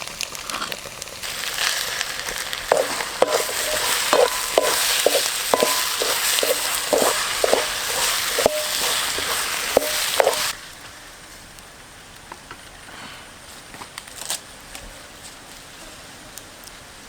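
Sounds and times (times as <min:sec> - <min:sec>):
food sizzling in a pan: 0:00.0 - 0:10.8
utensil knocking on metal pan: 0:02.7 - 0:10.5.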